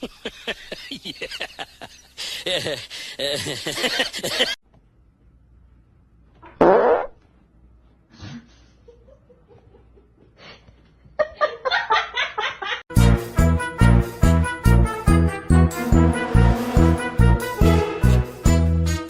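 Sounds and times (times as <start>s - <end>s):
fart-like rasp: 6.4s - 7.2s.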